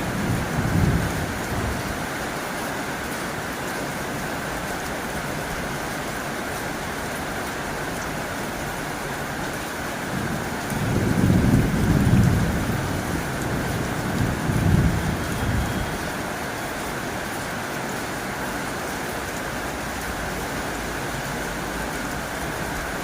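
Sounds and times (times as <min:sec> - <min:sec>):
low thunder rumbles: 0:00.0 - 0:02.1, 0:10.1 - 0:16.1
rain on a tin roof: 0:00.0 - 0:23.0.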